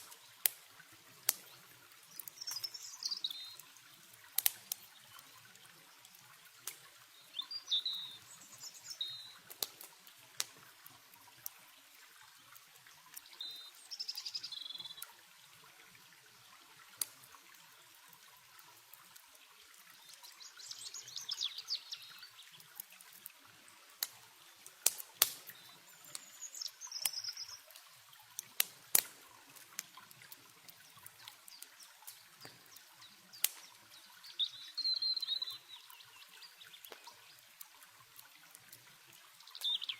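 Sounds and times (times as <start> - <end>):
songbirds chirping: 0.0 - 10.0, 10.8 - 16.6, 17.2 - 39.9
river water hissing: 0.0 - 11.6, 12.9 - 15.0, 20.4 - 36.8
campfire crackling and popping: 0.0 - 39.9.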